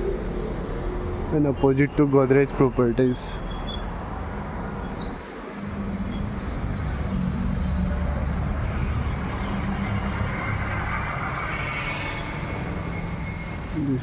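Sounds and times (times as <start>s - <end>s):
vehicle engine rumbling by: 5.7s - 14.0s.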